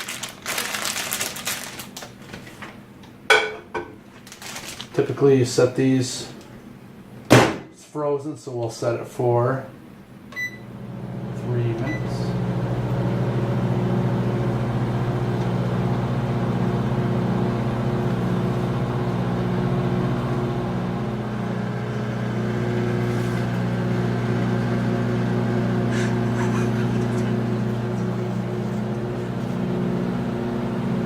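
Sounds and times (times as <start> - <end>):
microwave oven humming: 9.1 - 31.0.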